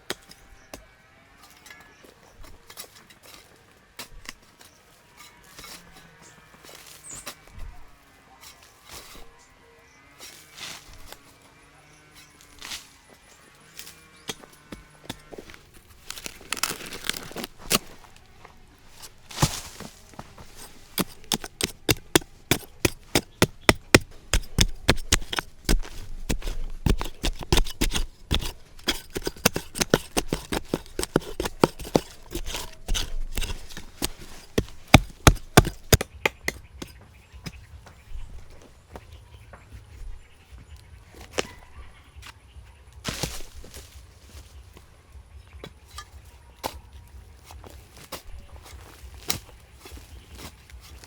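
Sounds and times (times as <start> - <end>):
sharp knocks and cracks: 20.6 - 37.6.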